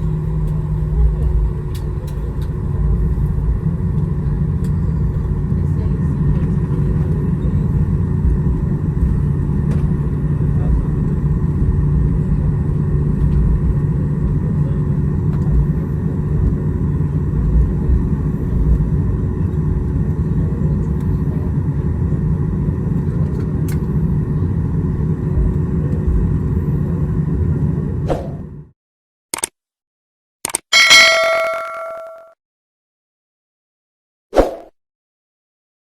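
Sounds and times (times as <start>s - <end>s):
airliner cabin rumble: 0.0s - 28.7s.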